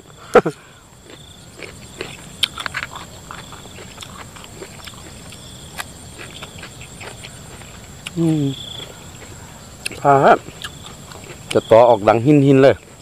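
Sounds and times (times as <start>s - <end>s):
insects trilling: 0.0s - 13.0s
person chewing and lip-smacking: 0.5s - 8.4s, 9.2s - 11.6s.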